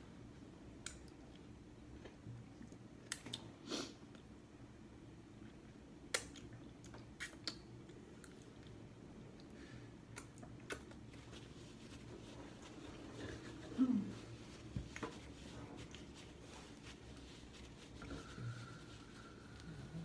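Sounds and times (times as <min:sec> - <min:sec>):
mouth clicks and lip smacks: 0:00.8 - 0:03.5, 0:05.4 - 0:09.5, 0:10.1 - 0:11.2
person chewing food: 0:05.3 - 0:13.1.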